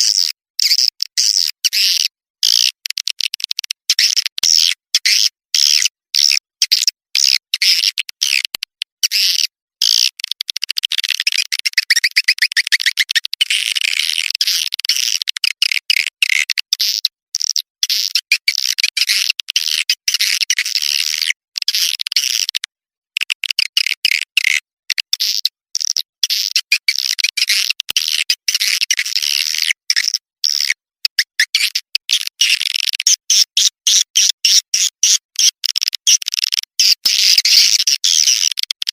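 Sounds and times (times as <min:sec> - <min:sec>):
swiftlets chirping and twittering: 0:11.2 - 0:13.2.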